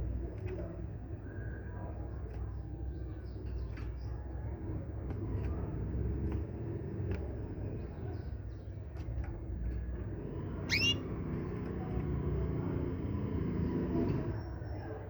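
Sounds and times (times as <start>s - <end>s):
small birds chirping: 0.0s - 15.0s
sweeping bird call: 10.7s - 11.1s.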